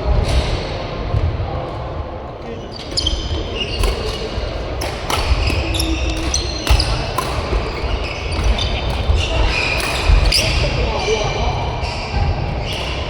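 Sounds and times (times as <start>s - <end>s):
shoes squeaking on court: 2.6s - 11.2s
racket hitting shuttlecock: 3.8s - 10.5s.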